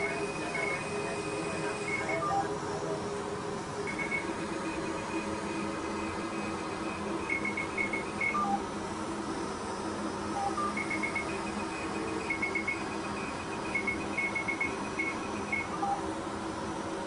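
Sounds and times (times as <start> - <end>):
laser device beeping: 0.0 - 2.8, 3.8 - 8.7, 10.1 - 16.1
steady hum: 0.0 - 17.0.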